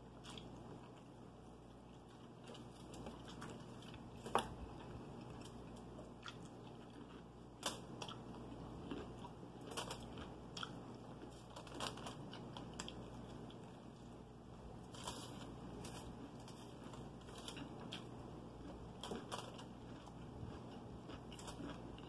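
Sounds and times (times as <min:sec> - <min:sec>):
chewing fried chicken: 0:00.0 - 0:22.0
aluminium foil clicks and crackles: 0:07.6 - 0:07.8, 0:09.7 - 0:10.2, 0:11.4 - 0:13.0, 0:14.9 - 0:18.0, 0:19.0 - 0:19.7.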